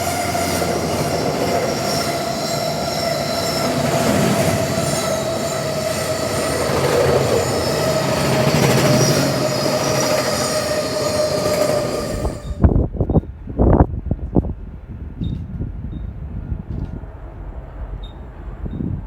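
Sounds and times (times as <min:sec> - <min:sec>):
train wagons rolling: 0:00.0 - 0:12.6
wheel squeal: 0:00.0 - 0:12.6.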